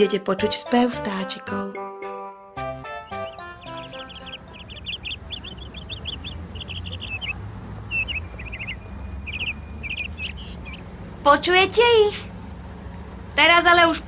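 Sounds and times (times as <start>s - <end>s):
songbird singing: 2.8s - 11.3s
low outdoor rumble: 3.2s - 14.0s.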